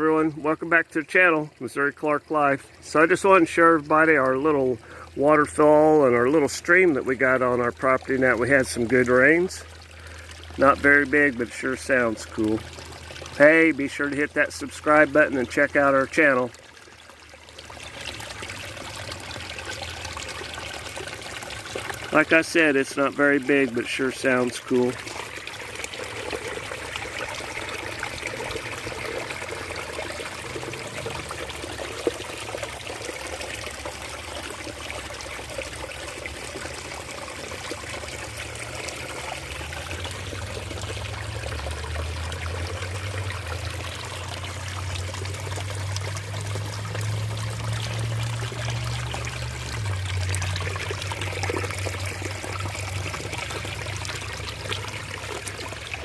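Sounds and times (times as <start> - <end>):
waterfall splashing into stream: 17.5 - 56.0.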